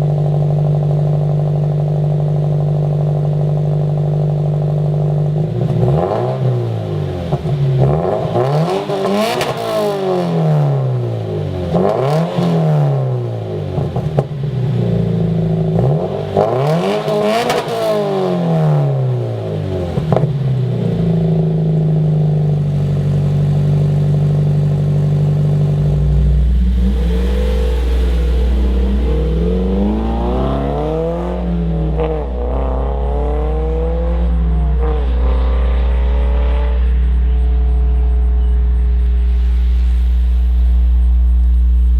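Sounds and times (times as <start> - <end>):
car engine revving: 0.0 - 41.9
deep steady drone: 18.2 - 41.9.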